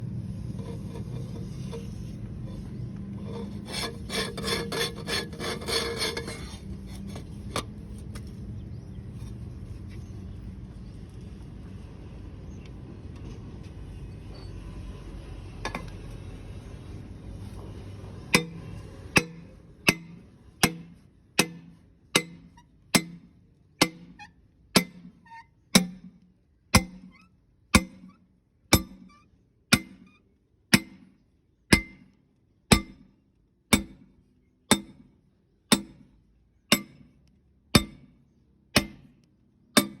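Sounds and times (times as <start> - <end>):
hammer striking metal: 18.3 - 25.2, 25.8 - 26.2, 26.8 - 27.2, 27.8 - 30.1, 30.7 - 31.1, 31.7 - 33.1, 33.7 - 34.1, 34.7 - 35.1, 35.7 - 36.1, 36.7 - 37.1, 37.8 - 38.1, 38.8 - 39.2, 39.8 - 40.0.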